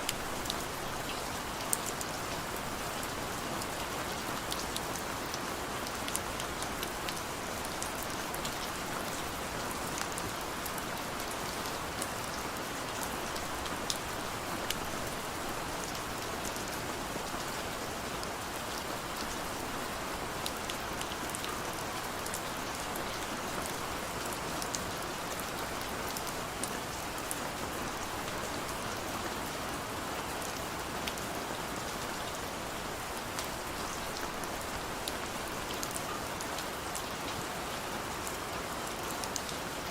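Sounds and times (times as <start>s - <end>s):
raindrops ticking on a surface: 0.0s - 19.5s, 30.4s - 39.9s.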